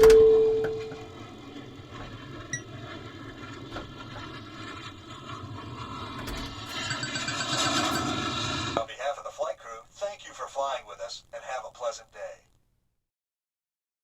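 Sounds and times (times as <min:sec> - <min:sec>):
pinball machine held tone: 0:00.0 - 0:04.8, 0:05.8 - 0:08.3
low steady hum: 0:00.0 - 0:05.1.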